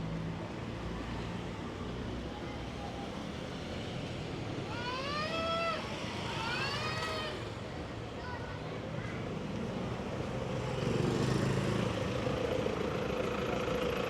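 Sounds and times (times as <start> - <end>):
traffic rumble: 6.0 - 14.0.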